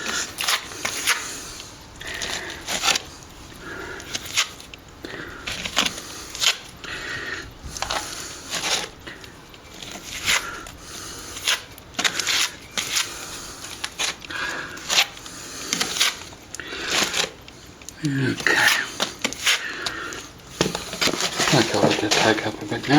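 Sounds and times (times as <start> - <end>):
trowel scraping plaster: 0.0 - 1.5, 2.1 - 3.1, 7.8 - 17.4, 18.3 - 22.9.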